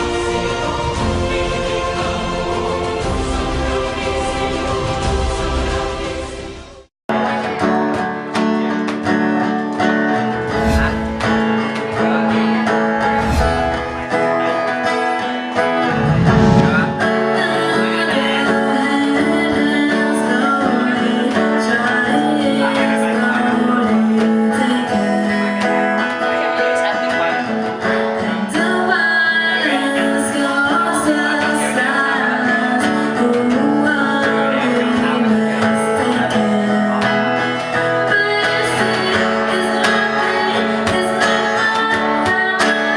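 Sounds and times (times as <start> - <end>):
acoustic guitar music: 7.2 - 16.0, 16.6 - 42.9
deep low hits: 10.4 - 11.7, 13.0 - 14.2, 15.8 - 17.4.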